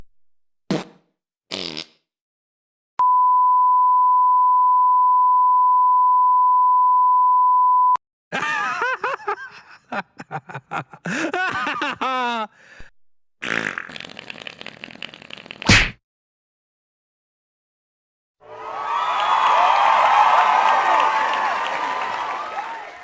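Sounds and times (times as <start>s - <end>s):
sine-wave beep: 3.0s - 8.0s.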